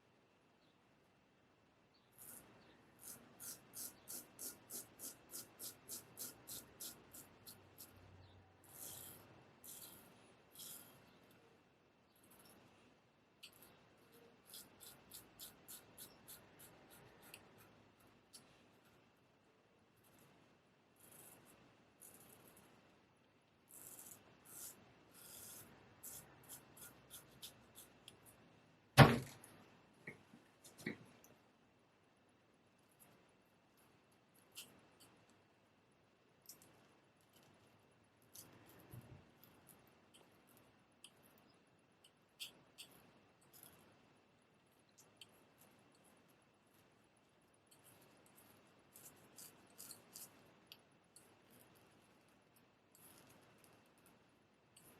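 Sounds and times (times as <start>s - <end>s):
razor scraping stubble: 2.2s - 8.0s
straight razor scraping strokes: 2.2s - 11.3s, 13.4s - 19.0s, 23.7s - 28.3s, 47.7s - 50.4s
loud knock: 29.0s - 29.3s.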